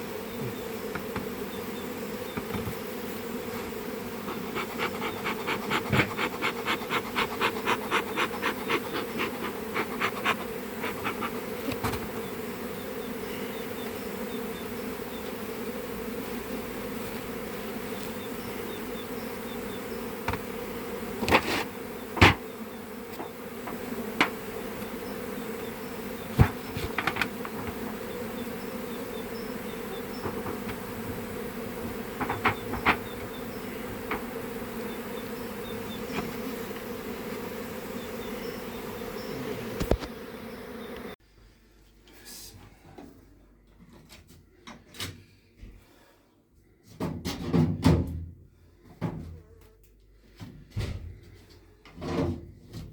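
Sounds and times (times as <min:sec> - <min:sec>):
honeybees buzzing: 0:00.0 - 0:41.2
sharp knocks: 0:31.8 - 0:33.3.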